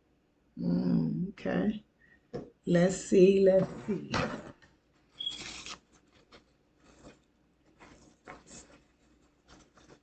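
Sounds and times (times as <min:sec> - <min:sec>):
faint handling rustles: 0:03.5 - 0:10.0.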